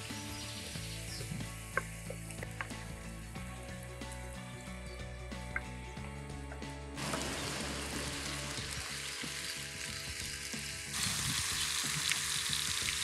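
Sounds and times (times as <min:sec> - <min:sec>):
food sizzling in oil: 0:07.0 - 0:13.0.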